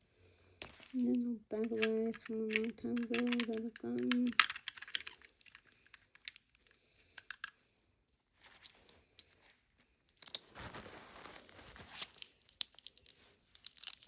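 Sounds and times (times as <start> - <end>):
rustling: 0.4 - 14.0
plastic miniatures clicking: 0.6 - 7.6, 10.1 - 10.5, 12.1 - 14.0.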